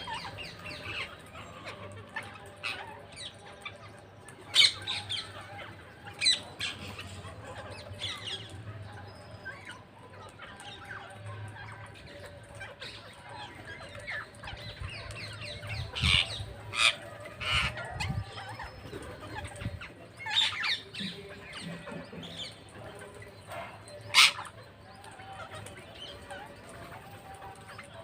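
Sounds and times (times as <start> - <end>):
parrots squawking: 12.1 - 22.6, 23.5 - 28.0.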